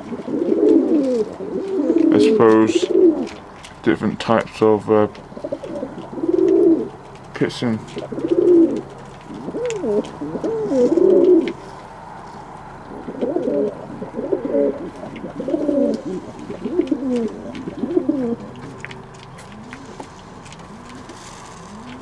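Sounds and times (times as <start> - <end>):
pigeons cooing: 0.0 - 3.8, 5.0 - 22.0.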